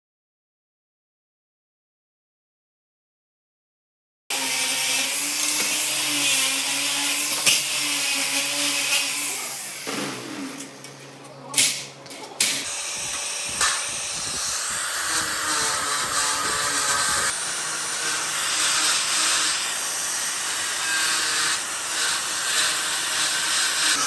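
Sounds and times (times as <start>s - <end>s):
electric power tool running: 4.3s - 24.0s.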